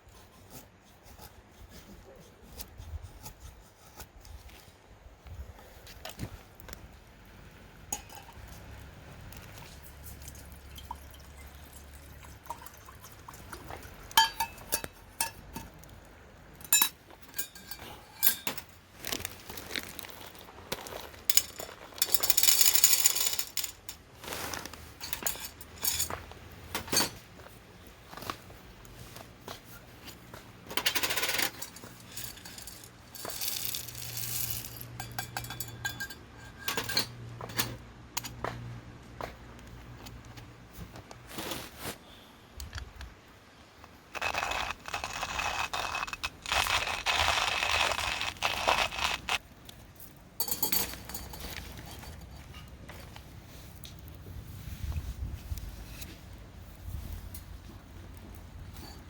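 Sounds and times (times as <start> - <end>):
clinks of small hard objects: 14.1 - 15.9, 16.6 - 27.2, 30.8 - 37.2, 50.4 - 52.3.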